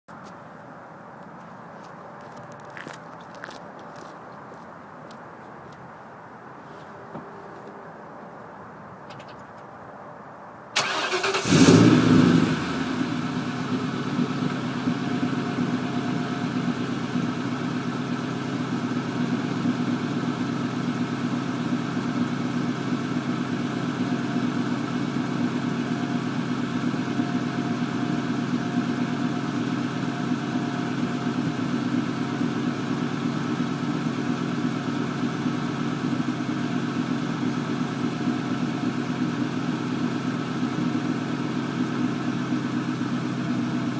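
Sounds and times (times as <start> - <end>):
car engine starting and idling: 10.7 - 43.9.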